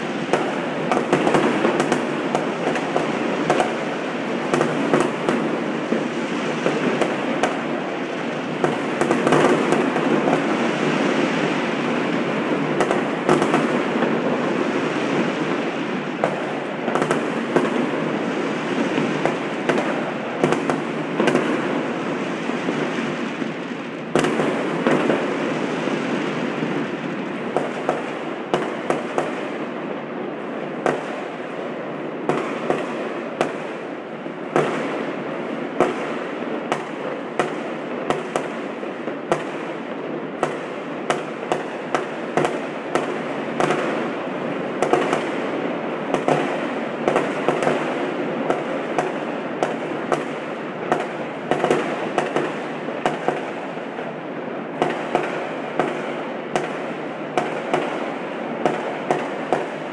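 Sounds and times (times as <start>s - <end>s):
fireworks popping and cracking: 0.0s - 59.9s.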